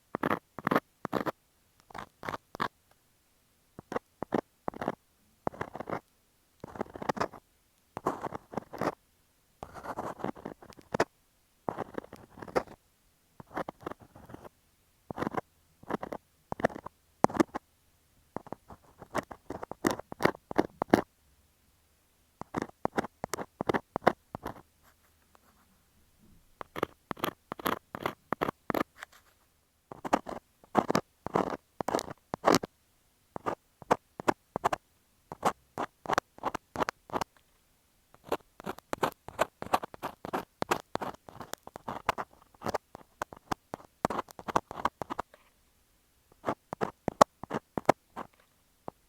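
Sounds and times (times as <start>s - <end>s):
ear scaler scratching microphone: 26.6s - 29.2s, 29.9s - 32.7s, 38.2s - 45.4s.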